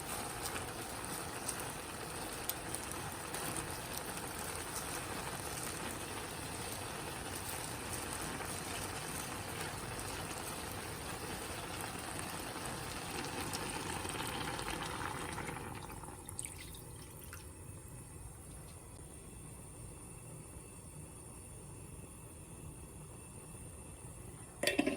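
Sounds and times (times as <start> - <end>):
tap water running into vessel: 24.6 - 24.9.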